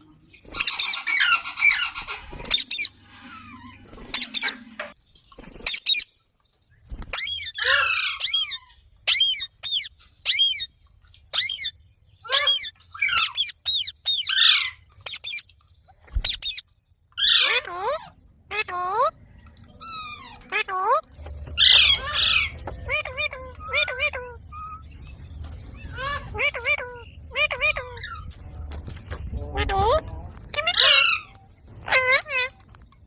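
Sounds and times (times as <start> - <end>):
parrot calling: 0.6 - 4.9, 7.1 - 10.7, 11.3 - 15.4, 17.2 - 19.1, 19.7 - 21.0, 21.6 - 28.3, 29.6 - 32.6.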